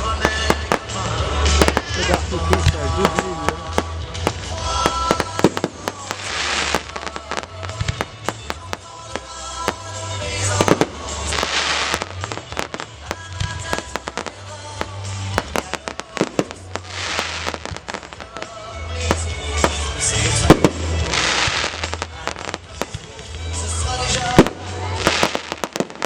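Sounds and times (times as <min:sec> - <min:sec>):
fireworks bangs and pops: 0:00.0 - 0:26.0
fireworks crackling hiss: 0:00.0 - 0:26.0
music with steady bass line: 0:00.0 - 0:26.0.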